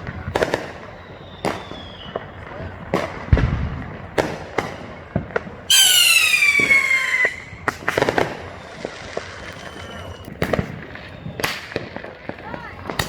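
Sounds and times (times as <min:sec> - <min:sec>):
firework bangs and pops: 0:00.0 - 0:13.0
whistling firework shrieking: 0:00.6 - 0:02.4, 0:05.7 - 0:10.3.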